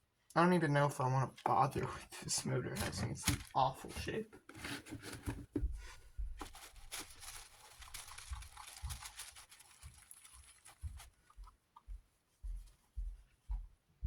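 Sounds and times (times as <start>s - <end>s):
fan parts being handled: 1.4s - 11.0s.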